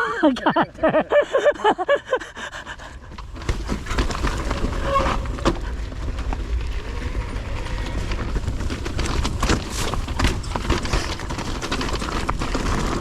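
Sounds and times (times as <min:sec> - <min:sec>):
person panting: 0:01.1 - 0:03.2.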